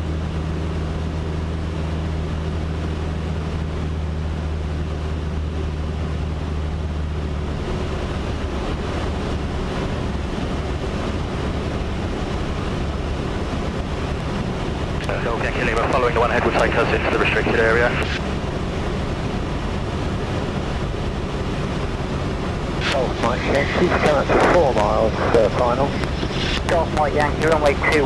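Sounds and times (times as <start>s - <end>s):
plane engine and propeller droning: 0.0s - 28.0s
rush of air: 22.8s - 26.7s.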